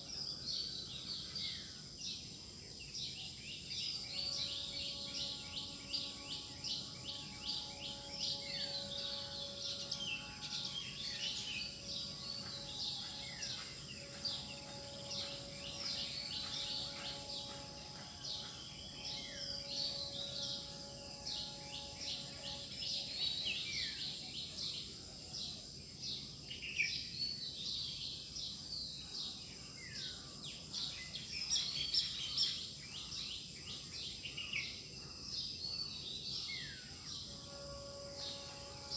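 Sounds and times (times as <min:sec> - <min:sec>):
small birds chirping: 0:00.0 - 0:24.8
background hiss: 0:00.0 - 0:38.9.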